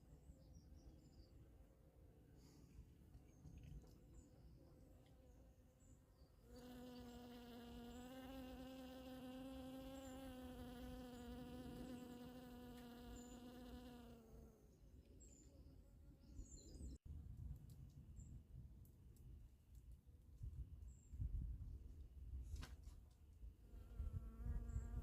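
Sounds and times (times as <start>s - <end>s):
bee buzzing in flight: 6.5s - 14.6s, 23.7s - 25.0s.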